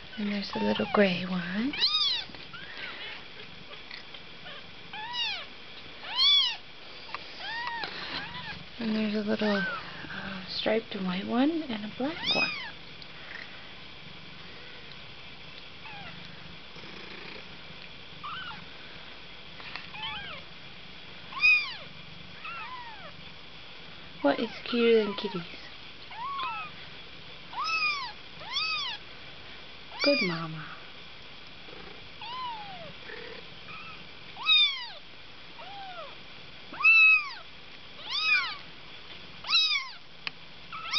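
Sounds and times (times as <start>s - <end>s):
kittens mewing: 1.7s - 6.6s, 9.3s - 10.0s, 12.2s - 12.8s, 26.1s - 26.8s, 27.5s - 29.0s, 29.9s - 30.5s, 38.0s - 38.6s.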